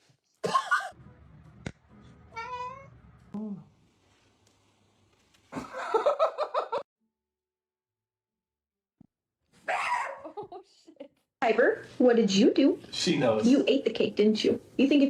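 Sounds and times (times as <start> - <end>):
person laughing: 5.5 - 6.8.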